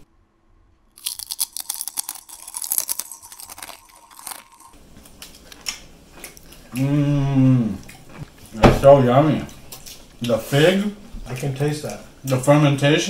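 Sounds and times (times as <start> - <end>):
crunchy fried chicken being chewed: 1.0 - 6.9.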